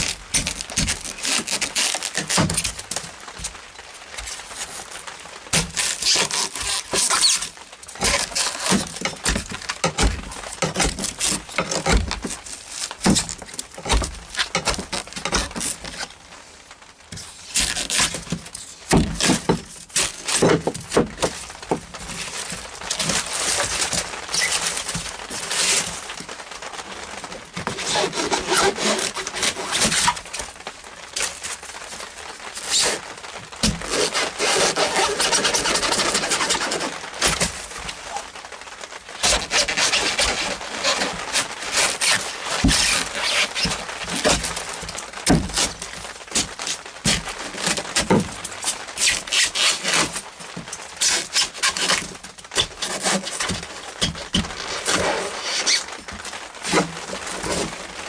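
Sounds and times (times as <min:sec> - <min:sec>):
hand tool rasping: 0:05.6 - 0:12.4, 0:27.6 - 0:30.2, 0:33.7 - 0:37.5, 0:39.2 - 0:44.6.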